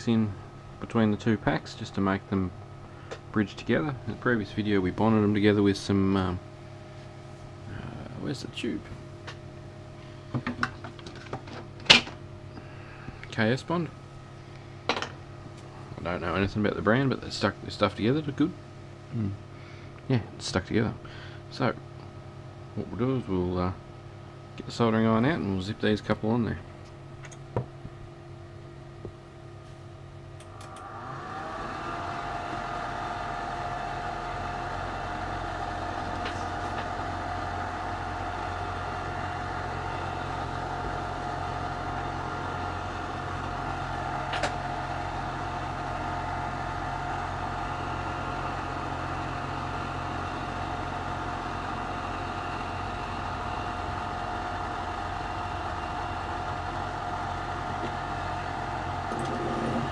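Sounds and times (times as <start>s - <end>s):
low hum: 0.0s - 11.2s
small electric motor whining: 30.4s - 44.8s, 58.6s - 59.9s.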